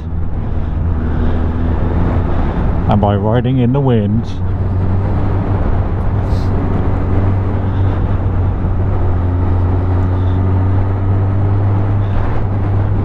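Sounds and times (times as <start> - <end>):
motorcycle engine cruising: 0.0 - 13.0
wind rushing: 4.1 - 13.0.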